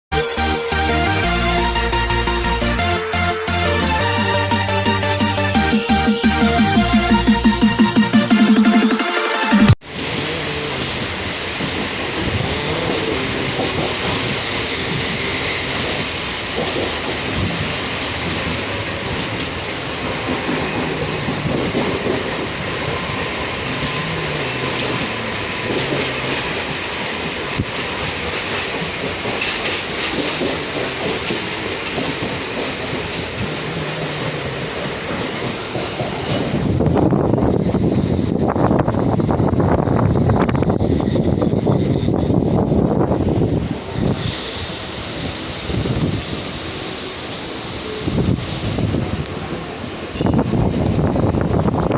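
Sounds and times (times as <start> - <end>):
train wheels clattering on rails: 10.8 - 51.9.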